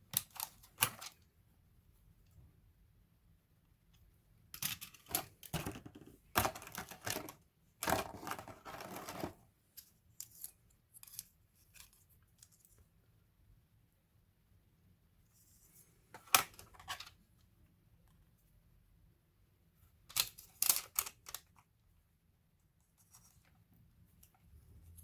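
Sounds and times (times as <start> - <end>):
small parts clicking and clattering: 4.5 - 12.8, 20.1 - 21.6.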